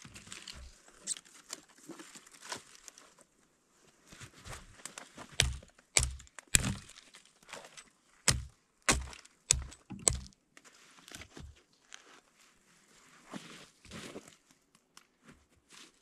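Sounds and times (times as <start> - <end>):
dry sticks snapping: 5.4 - 7.0, 8.3 - 10.4.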